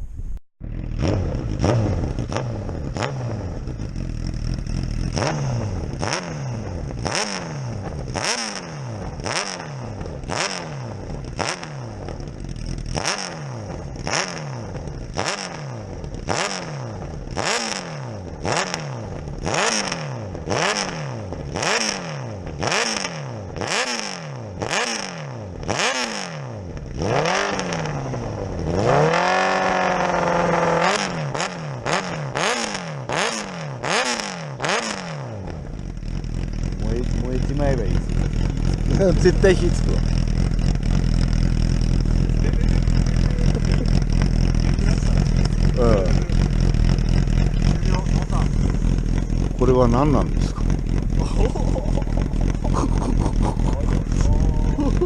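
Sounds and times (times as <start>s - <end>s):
boat engine knocking: 36.6s - 55.0s.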